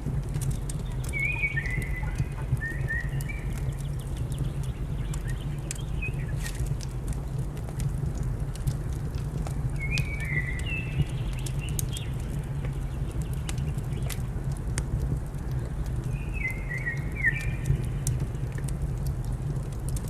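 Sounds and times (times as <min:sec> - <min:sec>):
wood fire crackling: 0:00.0 - 0:20.0
bird chirping: 0:00.6 - 0:06.6, 0:09.8 - 0:14.1, 0:16.1 - 0:17.8.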